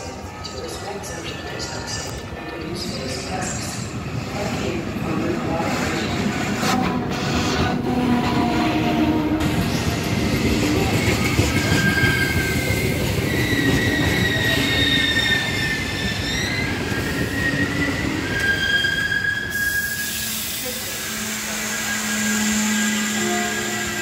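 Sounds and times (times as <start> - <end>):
low rumble of train coaches: 0.0 - 24.0
train wheels squealing: 9.6 - 24.0.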